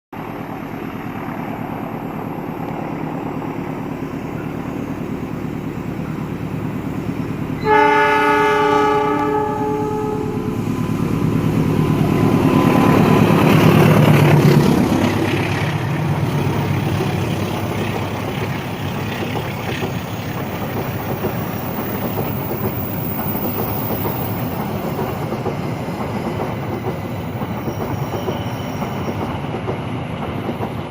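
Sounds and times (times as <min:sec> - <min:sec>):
diesel locomotive rumble: 0:00.2 - 0:30.9
train wheels on rails: 0:00.2 - 0:30.9
train horn: 0:07.6 - 0:10.6.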